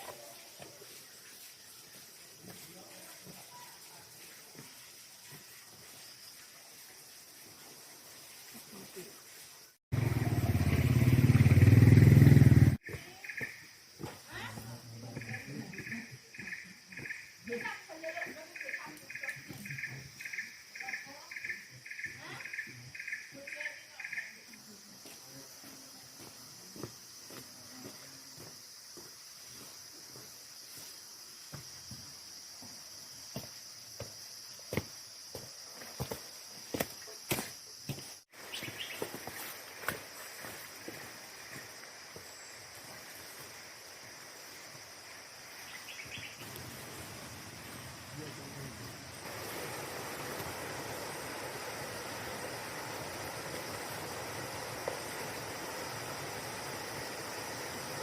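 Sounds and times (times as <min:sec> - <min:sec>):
high-pitched insect trill: 0:00.0 - 0:11.4, 0:12.3 - 0:58.0
cricket chirping: 0:00.0 - 0:58.0.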